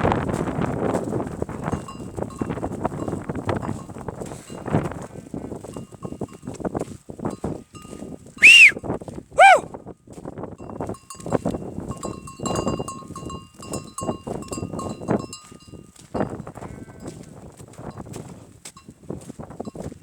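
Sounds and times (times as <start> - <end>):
sheep hooves clattering and shuffling: 0.0 - 9.2, 9.9 - 20.0
sheep calls: 8.4 - 8.8, 9.4 - 9.6.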